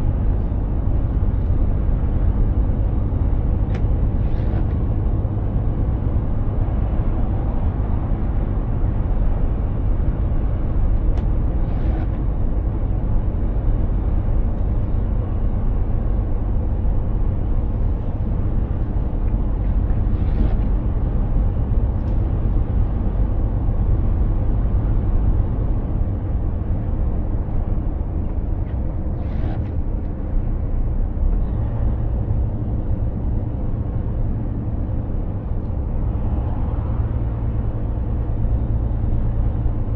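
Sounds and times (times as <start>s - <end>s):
road and tyre noise: 0.0s - 39.9s
truck engine drone: 0.0s - 39.9s.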